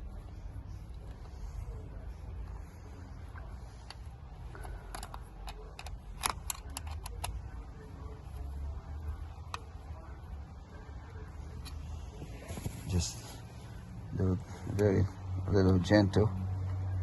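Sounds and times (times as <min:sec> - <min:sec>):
low steady hum: 0:00.0 - 0:17.0
cable tie ratchet clicks: 0:04.9 - 0:07.4.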